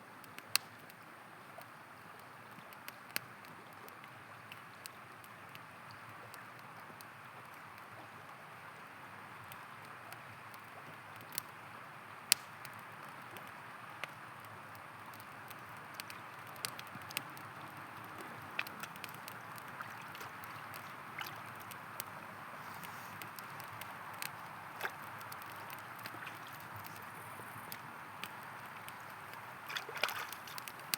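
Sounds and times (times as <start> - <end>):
campfire crackling and popping: 0.2 - 1.0, 1.6 - 8.2, 8.8 - 30.9
river flowing: 14.9 - 30.9.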